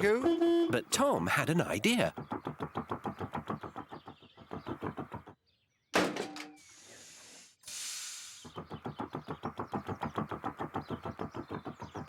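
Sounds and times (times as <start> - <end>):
cartoon tractor engine chugging: 0.0 - 5.4, 8.3 - 12.0.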